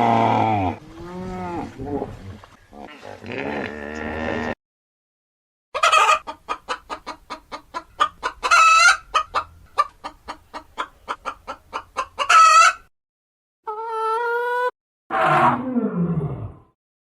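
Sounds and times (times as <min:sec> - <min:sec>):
hen drawn-out calls: 0:05.8 - 0:09.9, 0:10.5 - 0:12.8
hen clucking: 0:05.8 - 0:12.9, 0:13.7 - 0:14.7.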